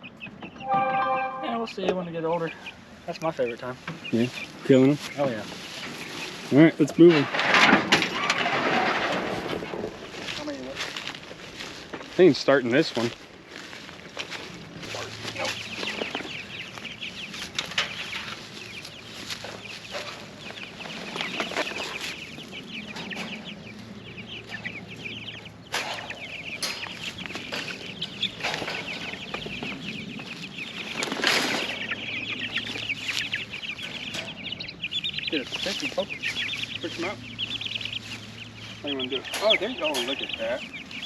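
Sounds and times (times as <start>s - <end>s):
chicks cheeping: 0.0s - 41.0s
wings flapping: 26.8s - 33.4s.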